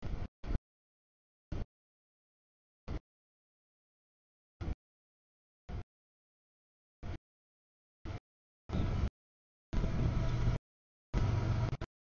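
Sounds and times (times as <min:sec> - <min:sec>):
freight train rumble: 0:08.7 - 0:09.1, 0:09.8 - 0:10.6, 0:11.2 - 0:11.9.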